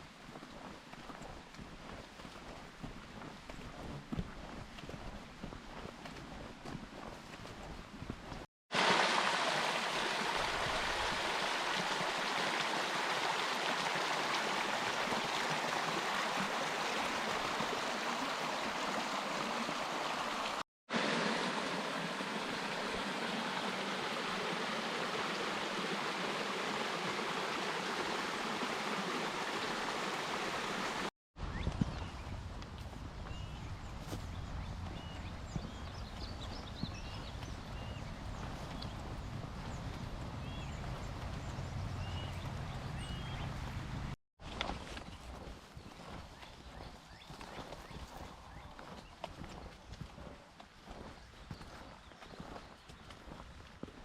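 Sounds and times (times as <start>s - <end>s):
stream water rushing: 8.7s - 31.1s.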